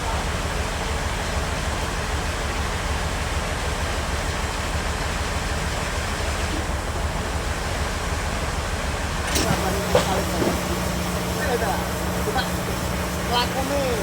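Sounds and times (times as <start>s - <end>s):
bandsaw running: 9.3s - 14.0s.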